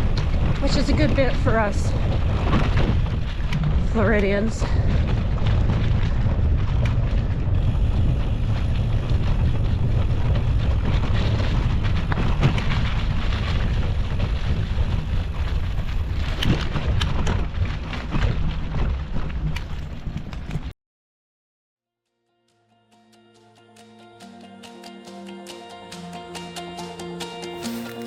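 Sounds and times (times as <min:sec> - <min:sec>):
mountain bike rolling on dirt: 0:00.0 - 0:20.7, 0:27.5 - 0:28.0
wind buffeting microphone: 0:00.0 - 0:20.7
bike clicks and rattles: 0:02.0 - 0:20.7.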